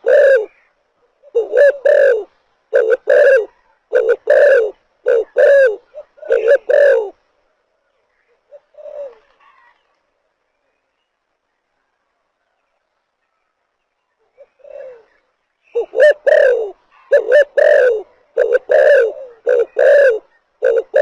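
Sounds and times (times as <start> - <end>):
dove cooing: 0.0 - 7.2, 8.3 - 9.7, 14.3 - 21.0.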